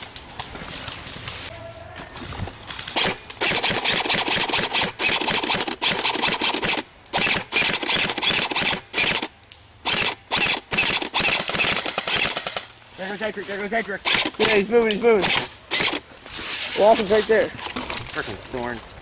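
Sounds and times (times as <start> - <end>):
airsoft rifle firing bursts: 3.0 - 12.7, 15.2 - 16.0.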